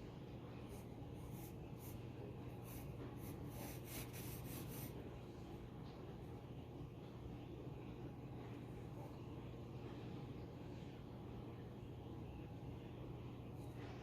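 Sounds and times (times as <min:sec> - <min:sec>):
low steady hum: 0:00.0 - 0:14.0
pencil scratching on paper: 0:00.6 - 0:05.0.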